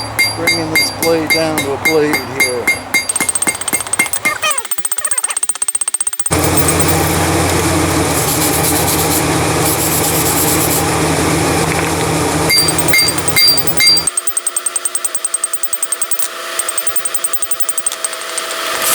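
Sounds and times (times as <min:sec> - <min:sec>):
light ringing metal clinks: 0:00.2 - 0:07.2
motor-driven machine running: 0:03.0 - 0:18.9.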